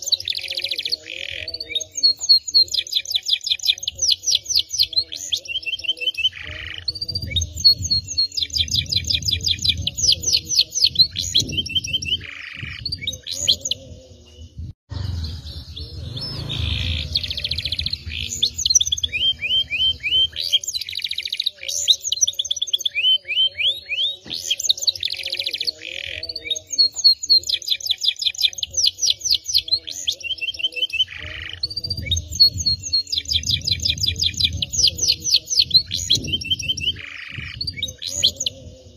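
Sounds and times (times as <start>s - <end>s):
canary singing trills: 0.0s - 38.9s
low rumble: 14.6s - 20.0s.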